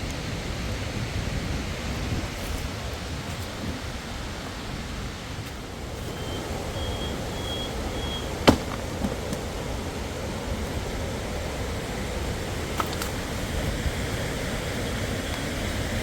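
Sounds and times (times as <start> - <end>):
waterfall rushing: 2.7 - 16.0
sharp knock: 8.4 - 9.1.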